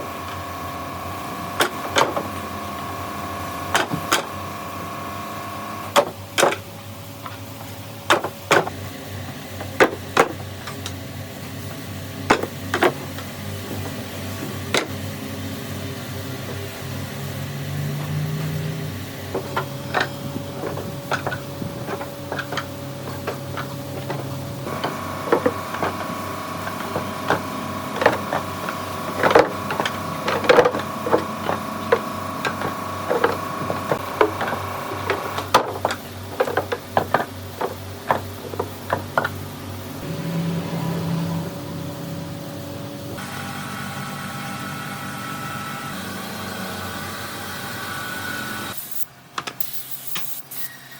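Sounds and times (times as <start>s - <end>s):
woodworking machine humming: 0.0s - 48.8s
sharp wooden knocks and clatters: 8.1s - 8.8s, 19.3s - 39.6s.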